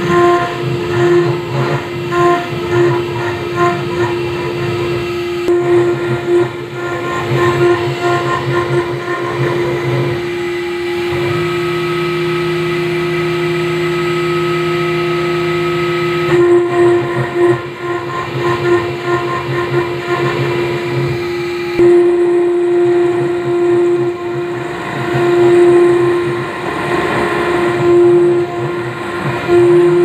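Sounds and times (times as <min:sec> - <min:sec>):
engraving machine spindle whine: 0:00.0 - 0:30.0.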